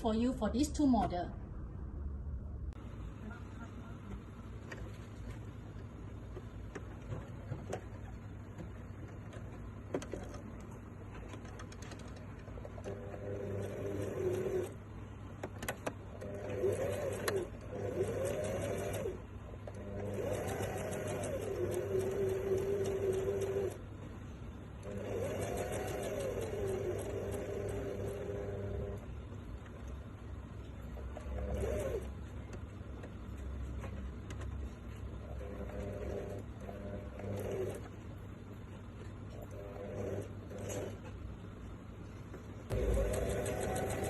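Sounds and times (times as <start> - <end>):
sewing machine stitching: 11.7 - 14.8, 16.1 - 23.8, 24.8 - 29.0, 31.0 - 32.1, 35.2 - 38.0, 39.4 - 41.1, 42.7 - 44.0.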